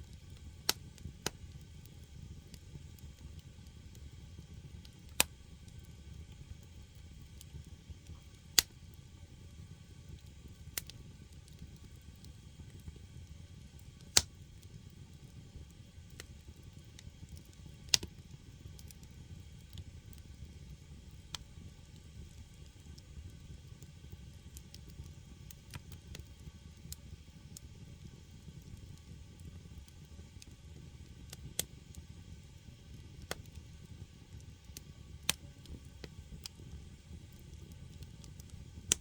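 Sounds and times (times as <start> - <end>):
logs popping and crackling: 0.1 - 8.8, 10.1 - 13.0, 13.8 - 14.6, 16.0 - 20.3, 32.9 - 33.6, 34.7 - 39.0.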